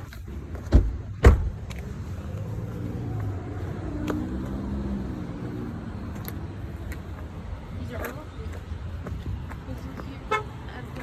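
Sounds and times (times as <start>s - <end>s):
sharp thumps: 0.6s - 1.8s.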